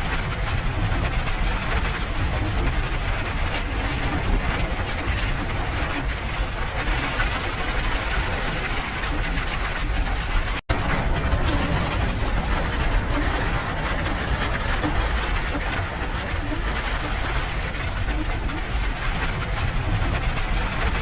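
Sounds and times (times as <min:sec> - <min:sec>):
low rumble: 0:10.4 - 0:21.0
steady rain hiss: 0:10.7 - 0:18.3.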